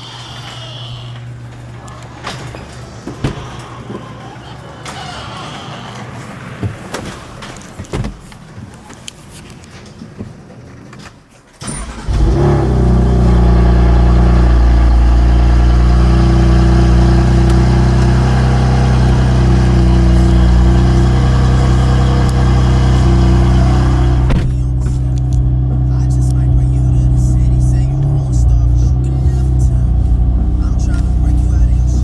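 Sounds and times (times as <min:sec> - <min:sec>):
car engine idling: 0:11.6 - 0:32.0
starter motor cranking: 0:11.6 - 0:32.0.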